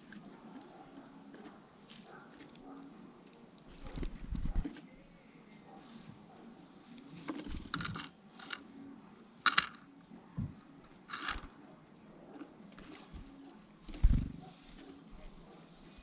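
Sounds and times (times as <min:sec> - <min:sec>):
bird wing flutters: 0:03.7 - 0:04.7, 0:12.8 - 0:14.7.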